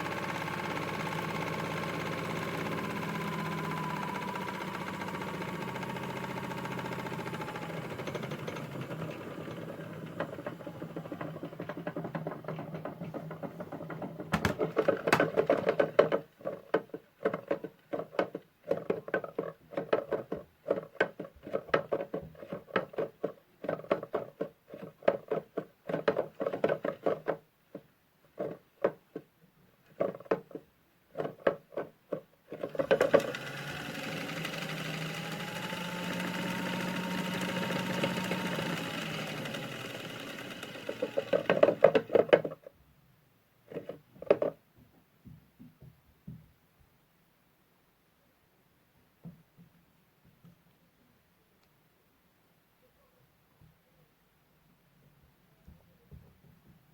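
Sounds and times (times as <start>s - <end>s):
small electric motor humming: 0.0s - 11.4s, 32.8s - 42.1s.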